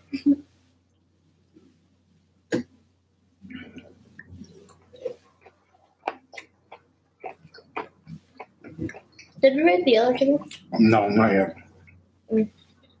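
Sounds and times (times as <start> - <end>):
people chewing: 3.4 - 9.4, 10.4 - 12.0.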